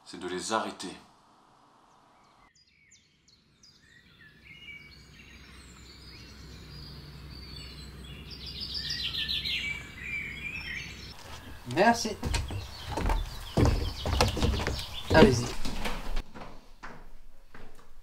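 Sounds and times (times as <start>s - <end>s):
birds chirping: 1.9s - 16.2s.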